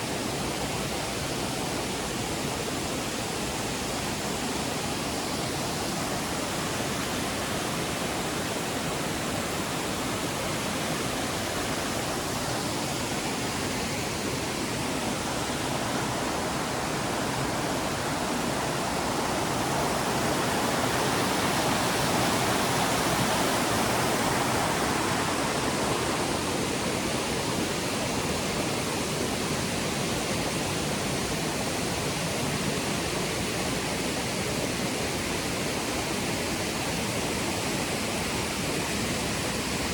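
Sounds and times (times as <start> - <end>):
waterfall rushing: 2.8 - 30.5.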